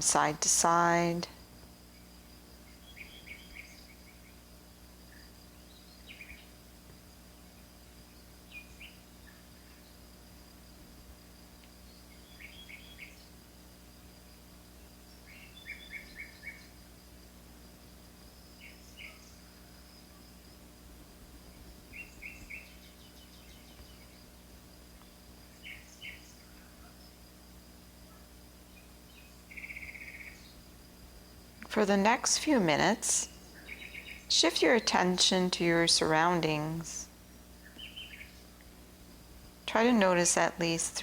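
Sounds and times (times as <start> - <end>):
bird chirping: 28.7 - 30.6, 32.0 - 36.9, 37.6 - 38.4.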